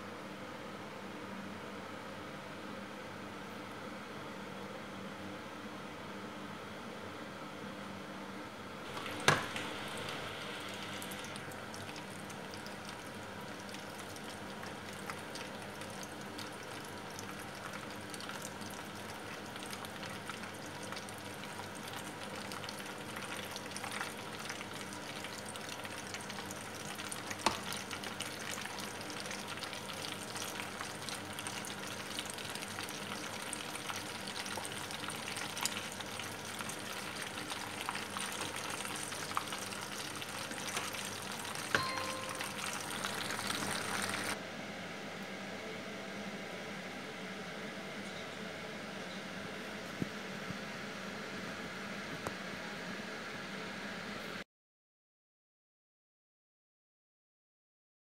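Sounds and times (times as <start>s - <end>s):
chicken deep-frying in oil: 8.9s - 44.4s.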